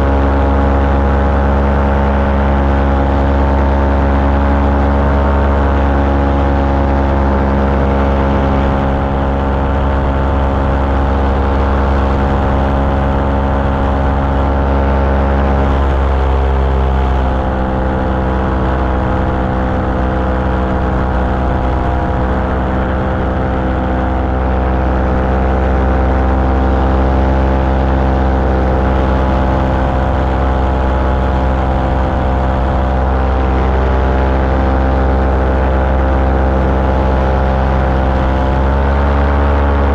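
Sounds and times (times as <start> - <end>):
small aircraft engine and propeller: 0.0 - 39.9.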